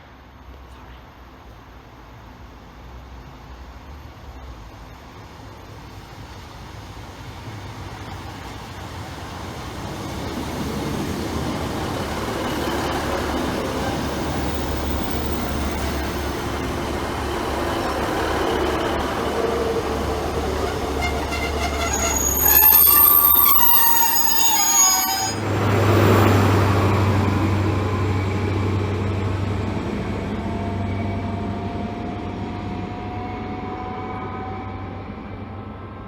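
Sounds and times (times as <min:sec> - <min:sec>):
train rumbling: 0:01.2 - 0:36.0
wheel squeal: 0:17.2 - 0:27.4.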